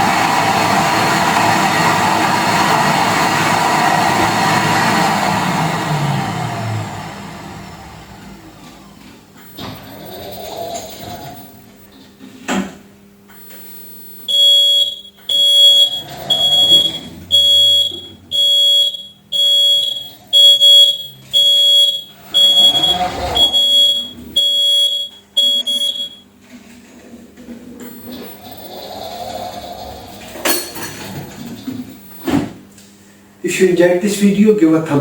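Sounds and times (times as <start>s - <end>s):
electronic warning beeps: 9.4s - 11.9s, 13.3s - 26.3s, 27.8s - 32.6s.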